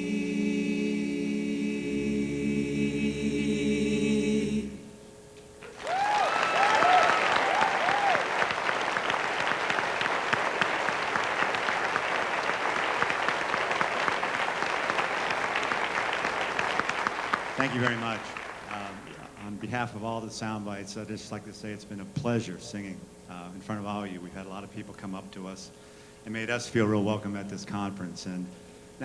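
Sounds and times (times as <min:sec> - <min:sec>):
a cappella group singing chord: 0:00.0 - 0:05.1
audience applause: 0:05.6 - 0:19.5
audience whooping: 0:05.6 - 0:19.5.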